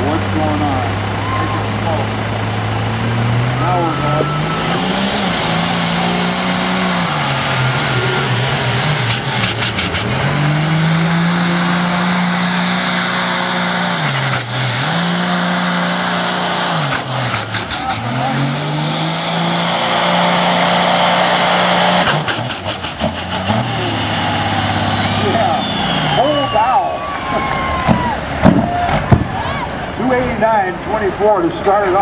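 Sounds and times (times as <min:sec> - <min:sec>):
engine running at high revs: 0:00.0 - 0:29.3
high whistle: 0:23.0 - 0:27.0.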